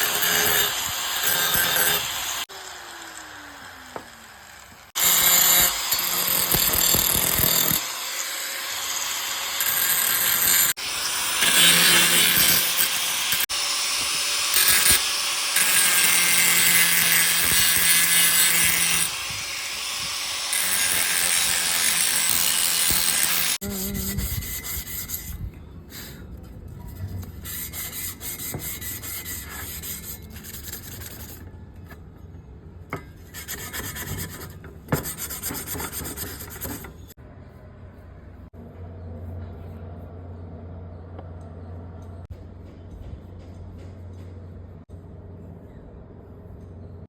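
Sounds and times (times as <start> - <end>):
grinder grinding metal: 0.0 - 25.4
motor winding down whine: 2.5 - 4.9.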